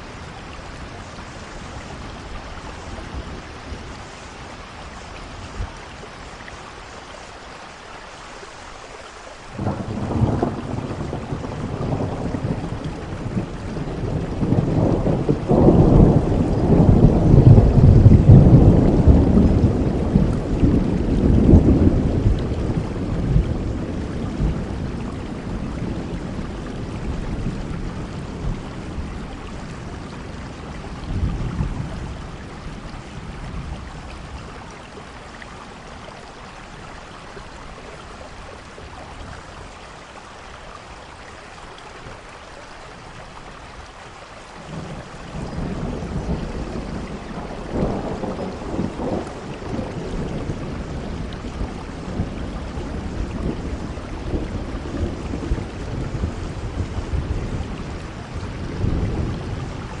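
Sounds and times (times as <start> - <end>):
steady rainfall: 0.0 - 60.0
thunder rumbling: 9.6 - 36.0, 44.6 - 60.0.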